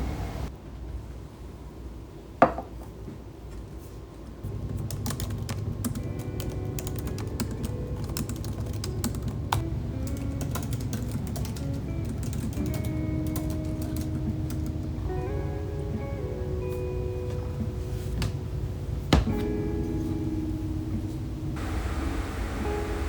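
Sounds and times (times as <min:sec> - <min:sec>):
computer keyboard typing: 0:04.7 - 0:14.8.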